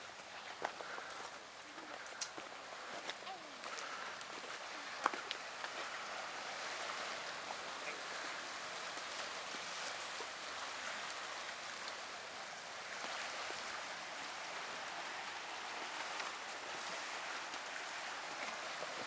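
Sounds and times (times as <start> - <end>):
faint ticks: 2.0 - 2.4.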